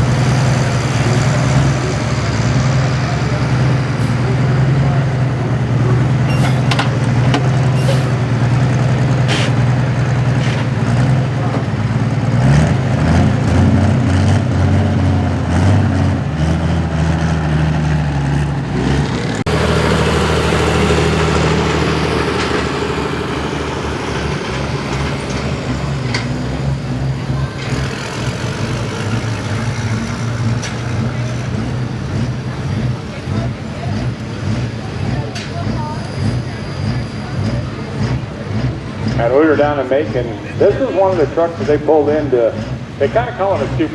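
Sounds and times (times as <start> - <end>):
diesel truck engine running hard: 0.0 - 43.9.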